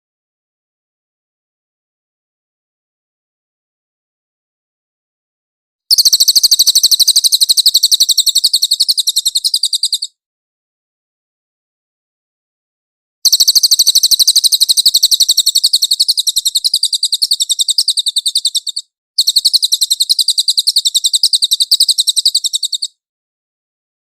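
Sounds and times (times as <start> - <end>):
bird singing rapid trills: 5.9 - 10.2, 13.2 - 23.0.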